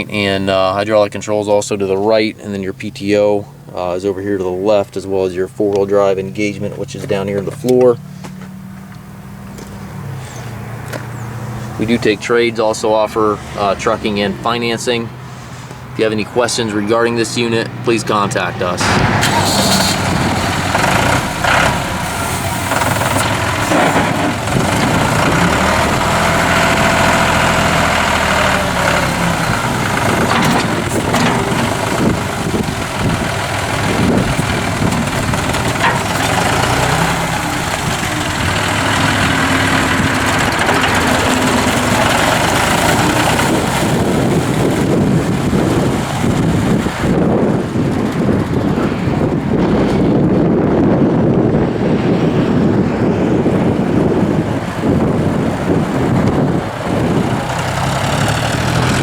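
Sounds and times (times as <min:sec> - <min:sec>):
diesel tractor engine running: 0:00.0 - 0:59.0.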